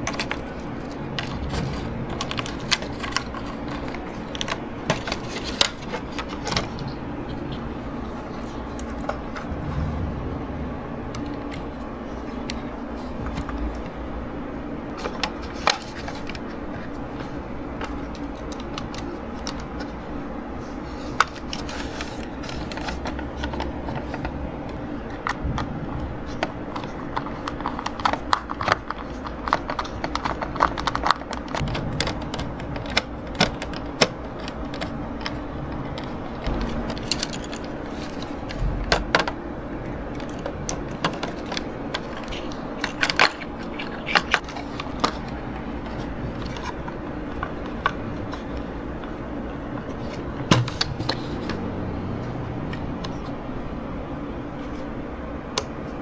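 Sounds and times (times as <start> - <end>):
steady low hum: 0.0 - 56.0
small plastic parts clicking: 21.2 - 39.4.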